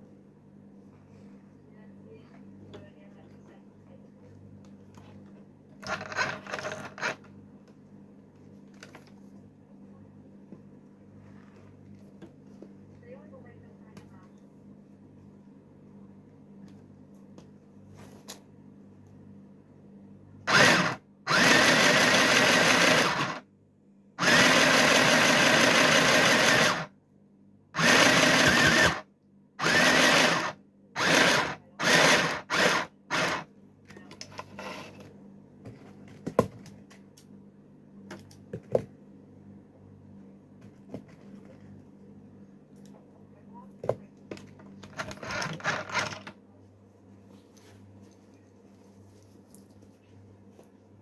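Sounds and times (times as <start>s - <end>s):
sewing machine stitching: 5.8s - 7.2s, 20.5s - 23.4s, 24.2s - 26.9s, 27.8s - 29.0s, 29.6s - 33.5s, 44.9s - 46.3s.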